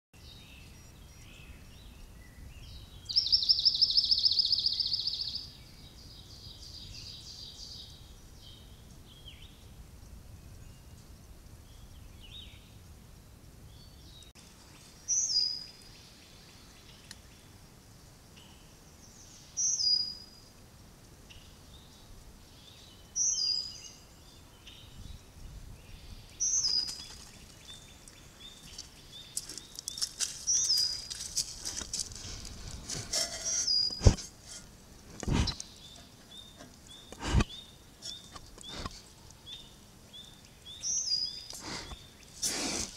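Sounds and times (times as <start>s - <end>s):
faint steady hiss: 0.2s - 42.9s.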